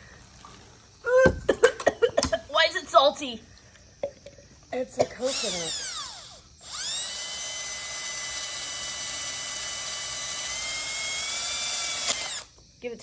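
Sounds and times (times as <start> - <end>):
power drill whining: 5.2 - 12.6.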